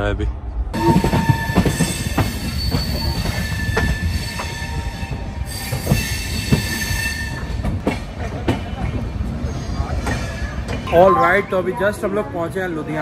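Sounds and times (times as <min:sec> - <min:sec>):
train wheels rumbling on rails: 0:00.2 - 0:10.9
high wheel squeal: 0:00.8 - 0:07.6
clacks over rail joints: 0:07.4 - 0:09.1.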